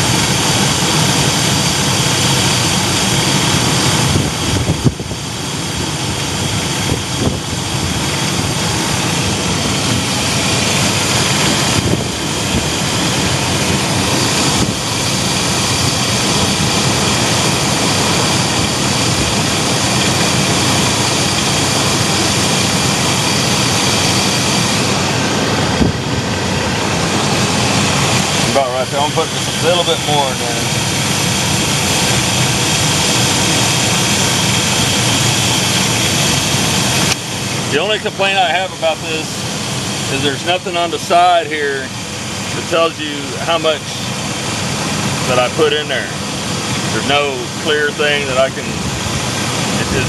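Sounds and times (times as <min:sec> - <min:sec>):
van engine idling: 0:00.0 - 0:50.0.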